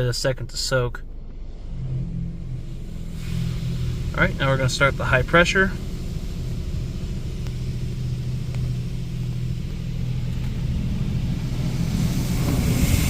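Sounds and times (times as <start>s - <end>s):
car wash machine humming: 0.0s - 13.0s
water spray hissing on car: 2.7s - 13.0s.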